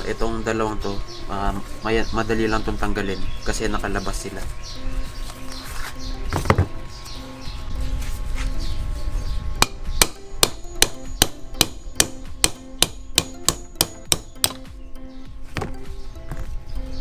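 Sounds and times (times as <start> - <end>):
hammer striking metal: 9.6 - 14.7.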